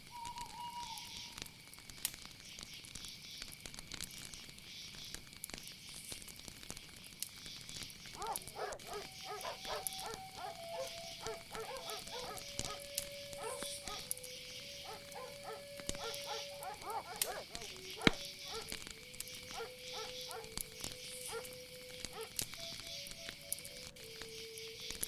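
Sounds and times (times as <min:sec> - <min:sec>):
insects chorus: 0:00.0 - 0:25.0
animal calls: 0:08.1 - 0:23.4.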